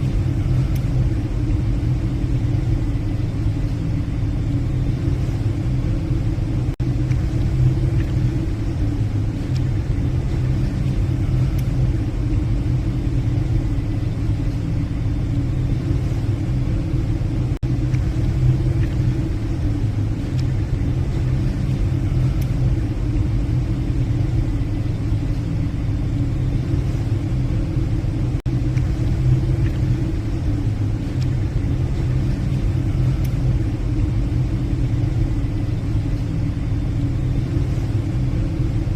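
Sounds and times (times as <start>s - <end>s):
ferry engines droning: 0.0s - 38.9s.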